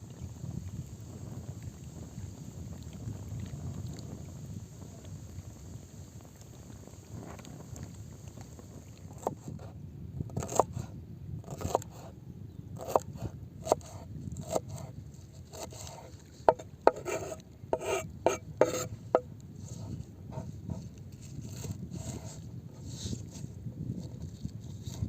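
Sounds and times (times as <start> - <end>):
short scrapes and knocks: 9.1 - 9.7, 12.8 - 25.0.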